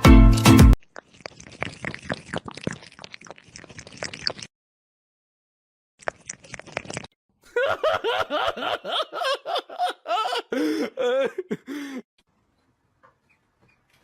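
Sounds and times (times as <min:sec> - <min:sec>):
person laughing hard: 0:07.5 - 0:12.0.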